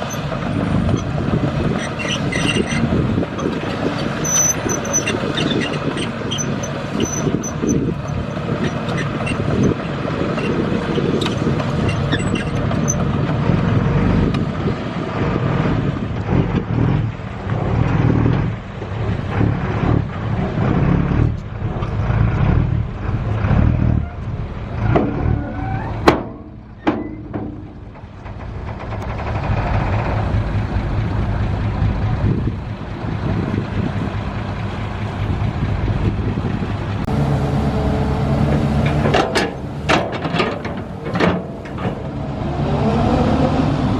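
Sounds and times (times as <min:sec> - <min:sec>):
heavy diesel engine running: 0:00.0 - 0:43.9
sharp metallic knocks: 0:26.0 - 0:29.2, 0:38.4 - 0:42.2.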